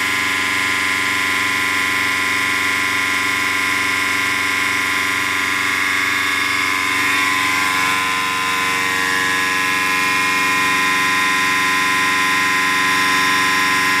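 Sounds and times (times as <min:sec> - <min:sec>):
high whine: 0:04.9 - 0:14.0.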